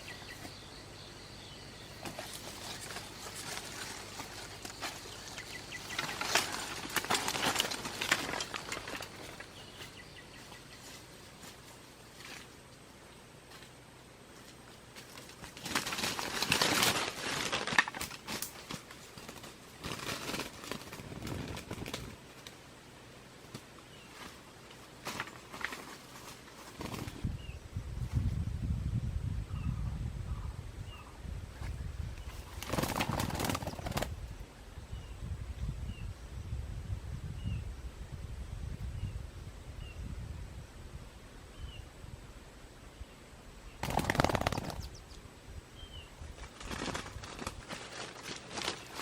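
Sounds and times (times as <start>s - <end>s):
bird chirping: 0.0s - 11.4s, 42.9s - 46.2s
dry plants crackling rustle: 1.8s - 28.4s, 31.5s - 34.4s, 43.8s - 45.1s, 45.9s - 49.0s
wings flapping rapidly: 2.0s - 10.0s, 15.0s - 22.6s, 25.0s - 27.3s, 31.6s - 34.4s, 43.8s - 45.0s, 46.3s - 49.0s.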